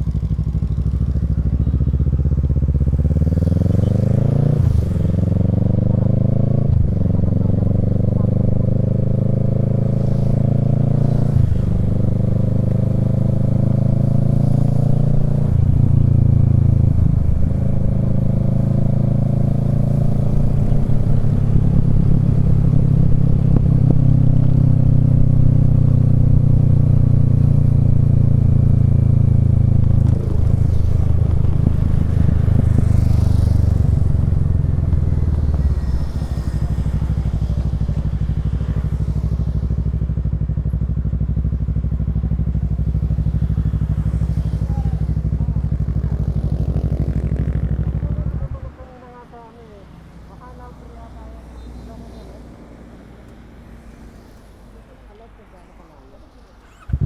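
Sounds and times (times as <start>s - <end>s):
motorcycle engine revving through gears: 0.0s - 48.8s, 56.2s - 57.0s.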